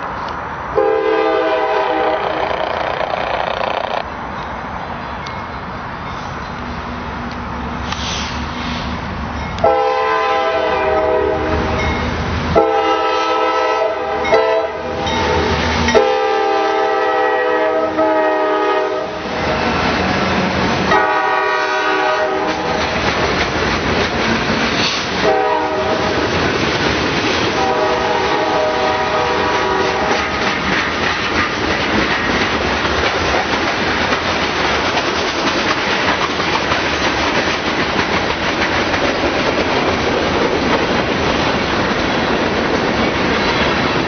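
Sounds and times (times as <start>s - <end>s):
locomotive rumble: 0.0s - 44.0s
train rolling on rails: 0.0s - 44.0s
locomotive air horn blasts: 0.8s - 2.5s, 9.6s - 11.7s, 12.6s - 19.2s, 20.9s - 22.8s, 25.2s - 26.1s, 27.6s - 30.2s.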